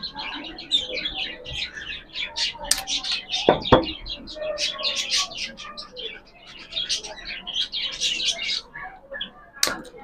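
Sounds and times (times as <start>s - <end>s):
small cage birds chirping: 0.0s - 10.0s
sharp knocks: 3.5s - 4.0s.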